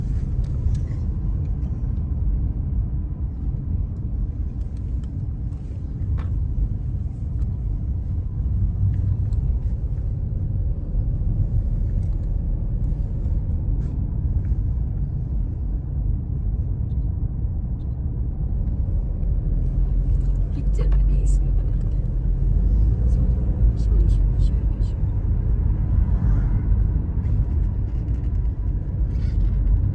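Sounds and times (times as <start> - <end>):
car engine and tyre rumble: 0.0 - 29.9.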